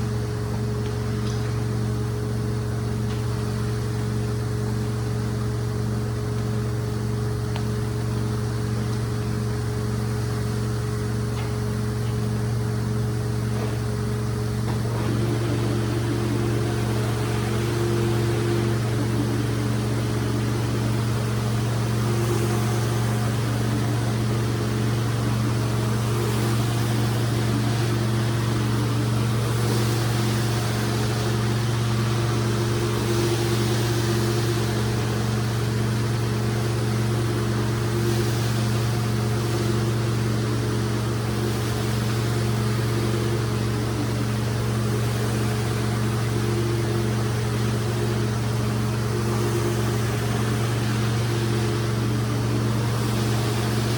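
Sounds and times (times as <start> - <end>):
cleaning machine motor humming: 0.0 - 53.9
machine hissing: 0.0 - 53.9.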